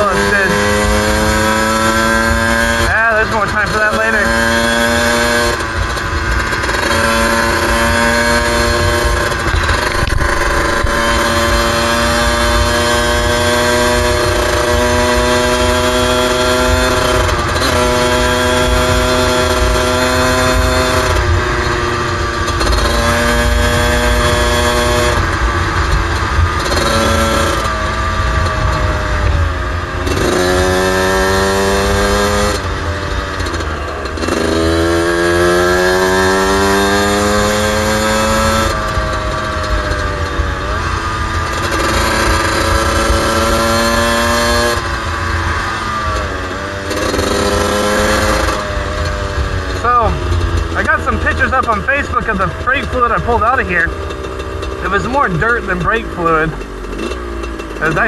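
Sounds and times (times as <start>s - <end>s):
two-stroke engine running: 0.0s - 58.0s
wind rumble on microphone: 7.5s - 15.1s.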